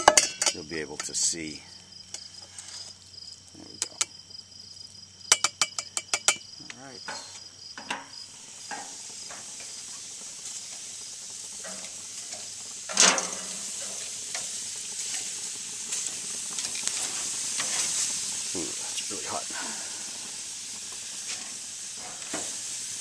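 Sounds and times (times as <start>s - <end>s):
food sizzling on a grill: 0.0s - 23.0s.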